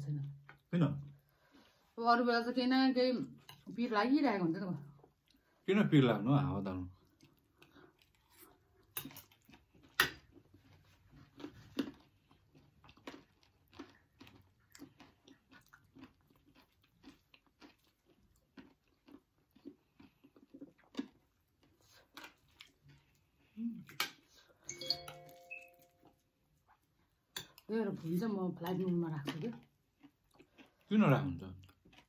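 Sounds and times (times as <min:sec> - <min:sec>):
crunchy snack chewing: 0:07.2 - 0:23.1.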